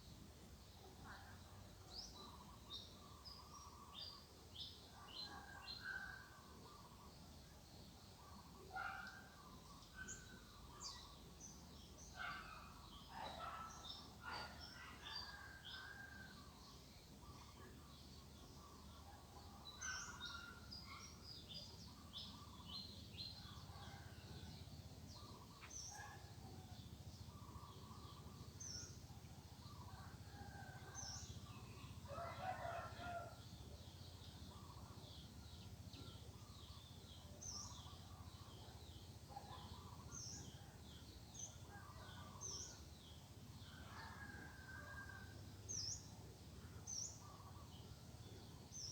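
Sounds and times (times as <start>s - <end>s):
faint rooster crowing: 30.0s - 33.7s, 43.7s - 45.9s.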